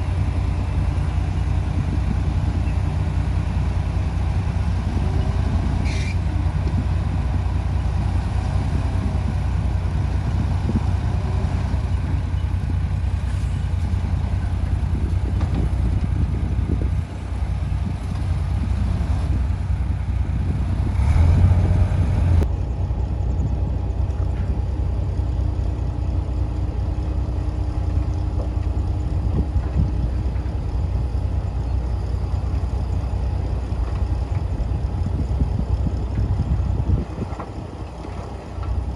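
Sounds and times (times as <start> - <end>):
heavy diesel engine droning: 0.0 - 38.9.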